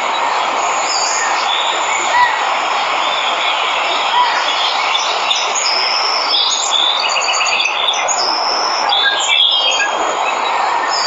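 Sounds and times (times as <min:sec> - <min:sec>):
waterfall rushing: 0:00.0 - 0:11.0
birds whistling and chirping: 0:03.2 - 0:11.0.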